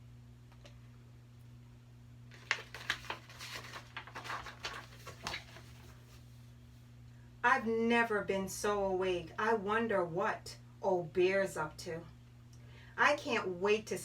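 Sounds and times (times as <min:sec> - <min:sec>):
low electrical hum: 0:00.0 - 0:14.0
paper page turning: 0:02.3 - 0:06.2.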